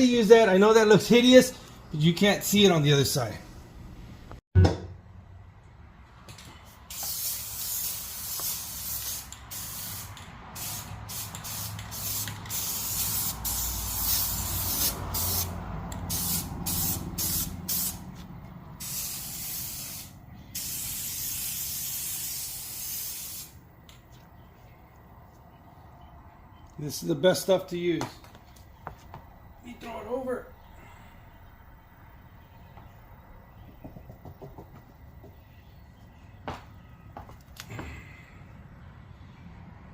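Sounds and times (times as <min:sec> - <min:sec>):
aerosol can spraying: 0:06.9 - 0:18.0, 0:18.8 - 0:23.6.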